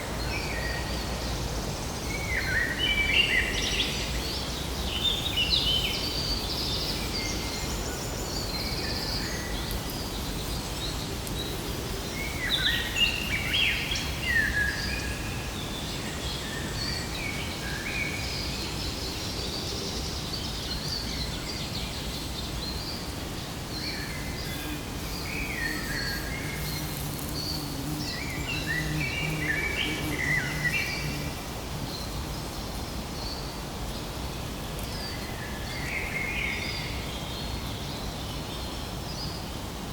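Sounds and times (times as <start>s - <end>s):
low background noise: 0.0s - 39.9s
birds chirping: 23.8s - 32.1s.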